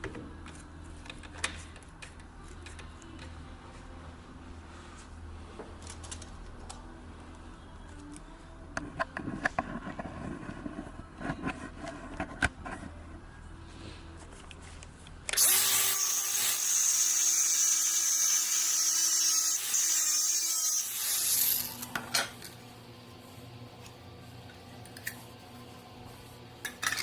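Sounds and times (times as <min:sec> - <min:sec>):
electric power tool running: 0:15.4 - 0:22.0.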